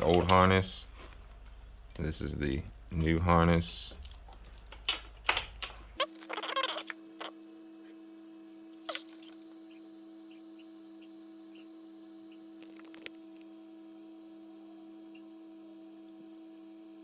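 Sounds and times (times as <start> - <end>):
wire connectors clicking and rattling: 0.0 - 2.1, 3.9 - 6.9, 12.6 - 13.2
electrical hum: 0.0 - 17.0.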